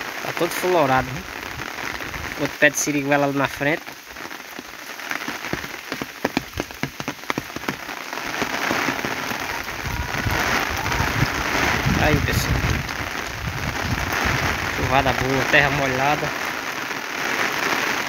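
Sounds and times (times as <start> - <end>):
heavy rain hissing: 0.0 - 18.0
raindrops pattering: 0.0 - 18.0.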